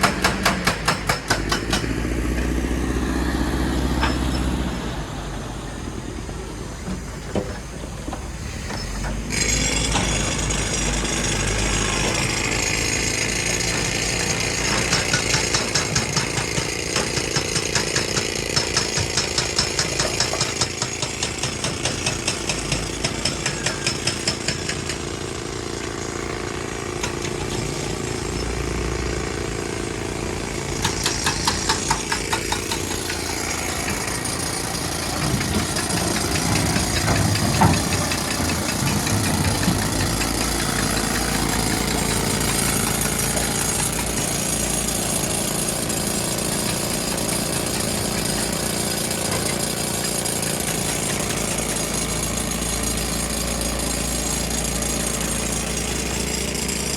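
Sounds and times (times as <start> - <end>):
engine drone: 26.7 - 56.9.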